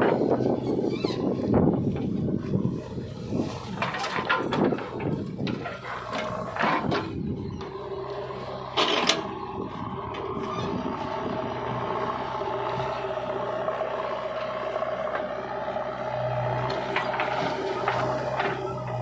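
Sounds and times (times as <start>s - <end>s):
diesel engine running: 0.0s - 19.0s
loud scrape and clatter: 3.2s - 7.2s, 8.7s - 9.3s, 16.6s - 19.0s.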